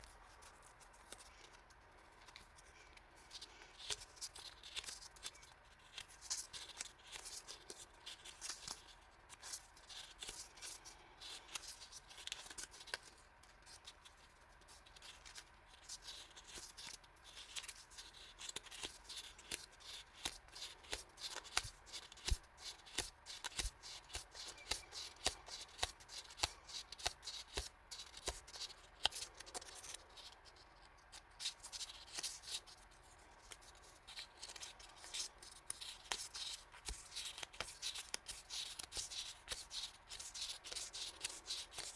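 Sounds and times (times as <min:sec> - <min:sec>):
paper rustling and crinkling: 0:00.0 - 0:41.9.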